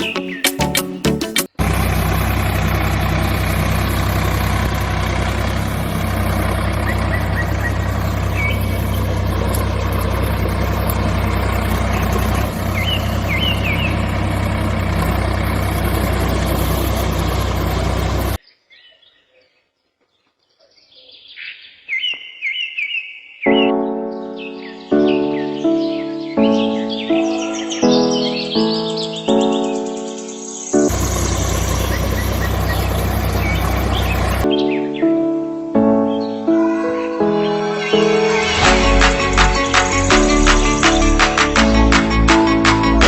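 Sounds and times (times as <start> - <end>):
bird chirps: 0.0 - 35.1
machine humming: 1.6 - 18.4, 30.9 - 34.5.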